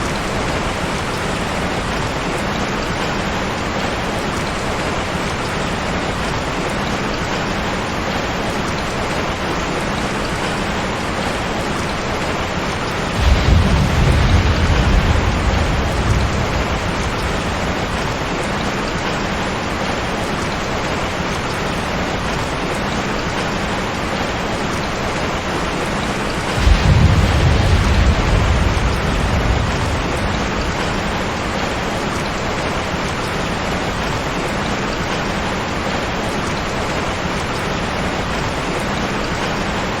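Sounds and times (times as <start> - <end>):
heavy rain hissing: 0.0 - 40.0
thunder rolling: 13.0 - 19.6, 26.3 - 32.7.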